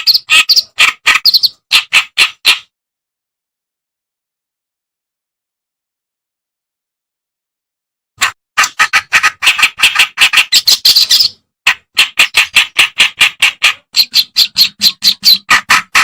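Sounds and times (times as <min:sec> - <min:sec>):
reed warbler song: 0:00.0 - 0:01.6.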